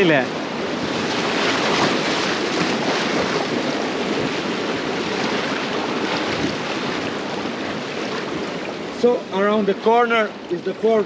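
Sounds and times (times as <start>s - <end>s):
wind noise on microphone: 0.0s - 8.8s
river water rushing: 0.0s - 11.0s.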